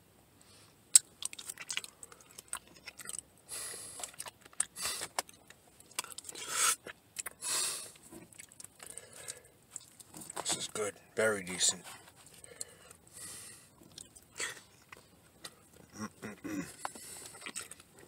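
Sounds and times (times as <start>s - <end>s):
person chewing with mouth clicks: 0.9s - 3.3s, 3.9s - 10.4s, 13.7s - 18.0s
hissing puffs of breath: 6.4s - 6.8s, 7.4s - 8.0s, 12.4s - 13.8s.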